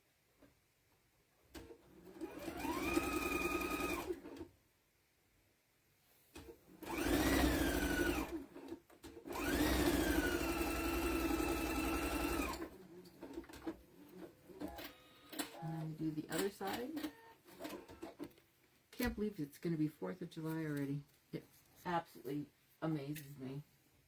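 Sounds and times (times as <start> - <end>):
sewing machine stitching: 1.5 - 4.5, 6.3 - 18.4.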